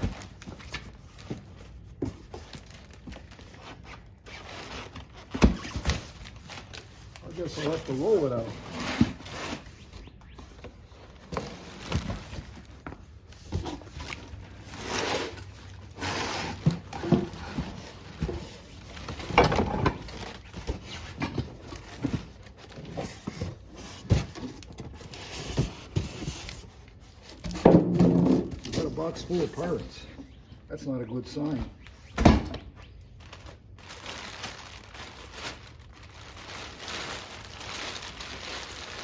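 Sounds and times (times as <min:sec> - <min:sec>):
cardboard rustling and scraping: 0:00.0 - 0:30.1.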